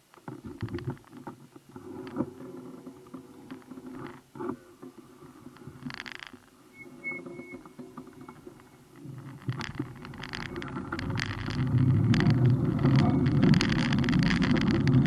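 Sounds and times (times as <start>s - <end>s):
bicycle riding rumble: 0.3s - 15.0s
faint high beeps: 6.7s - 7.6s
knocks and rattles: 7.6s - 15.0s.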